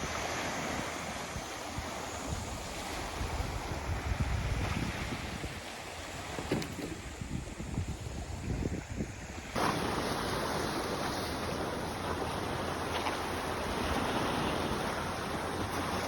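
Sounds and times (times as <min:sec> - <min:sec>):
wind buffeting microphone: 0:01.3 - 0:16.0
sea surf washing onto beach: 0:09.4 - 0:16.0.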